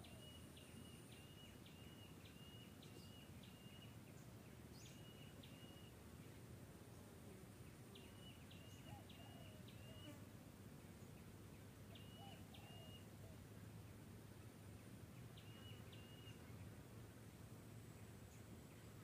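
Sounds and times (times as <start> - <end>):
bird whistling calls: 12.0 - 13.1, 15.4 - 16.4.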